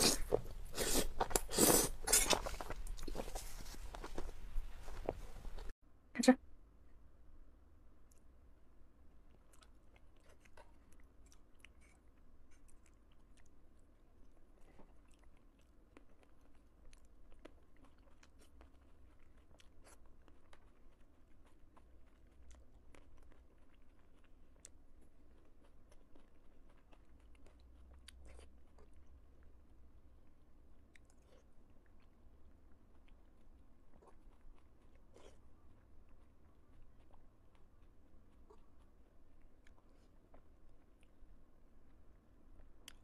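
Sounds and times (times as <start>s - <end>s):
chewing gummy candy: 9.2s - 43.0s.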